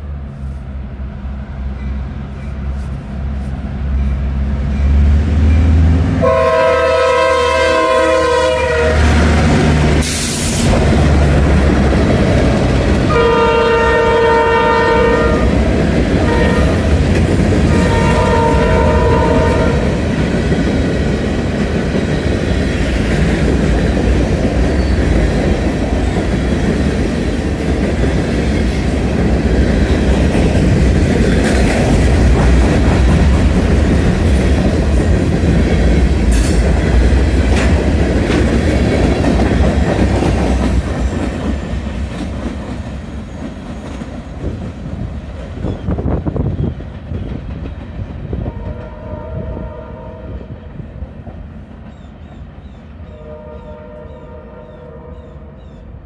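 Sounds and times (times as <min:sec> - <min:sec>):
train wheels rumbling and clacking: 0:00.0 - 0:53.1
faint train horn: 0:05.6 - 0:09.4, 0:13.1 - 0:15.6, 0:16.2 - 0:17.0, 0:17.6 - 0:20.1, 0:48.4 - 0:50.9, 0:53.0 - 0:55.8.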